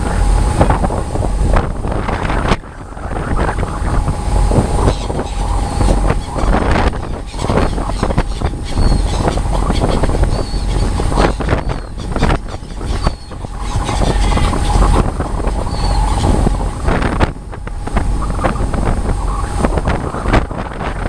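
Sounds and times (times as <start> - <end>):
boat engine running: 0.0 - 21.0
water: 0.0 - 21.0
wind buffeting microphone: 0.0 - 21.0
seagull calls: 4.6 - 17.1.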